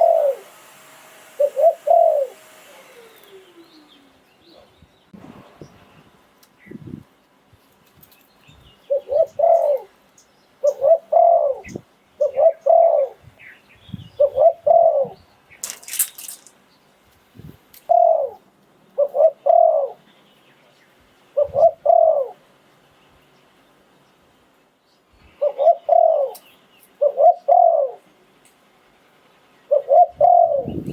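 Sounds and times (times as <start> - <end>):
dove cooing: 0.0 - 0.5, 1.3 - 4.7, 8.9 - 10.0, 10.6 - 15.2, 17.8 - 18.4, 19.0 - 20.1, 21.4 - 22.4, 25.4 - 28.1, 29.7 - 30.9.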